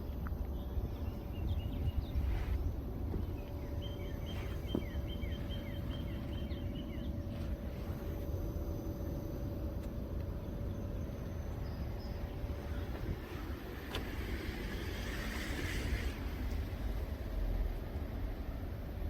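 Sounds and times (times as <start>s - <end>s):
bird chirping: 0.0s - 7.8s, 10.4s - 13.5s
faint even hum: 0.0s - 19.0s
steady low rumble: 0.0s - 19.0s.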